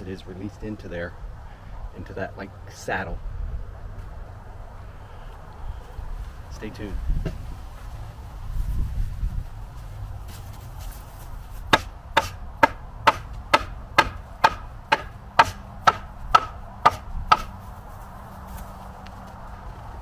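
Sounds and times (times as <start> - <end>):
hammer striking metal: 11.8 - 17.5.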